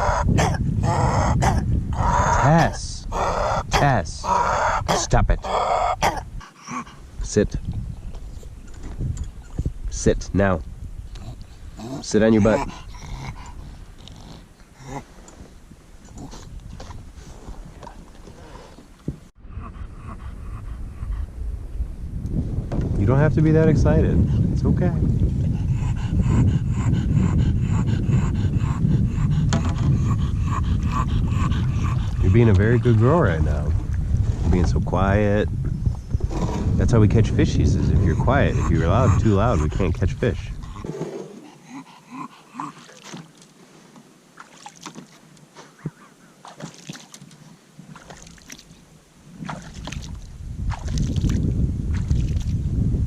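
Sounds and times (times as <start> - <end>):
dog panting hard: 12.2 - 13.8, 19.4 - 21.3, 25.4 - 32.9, 37.4 - 43.0
water splashing against kayak: 42.7 - 52.7.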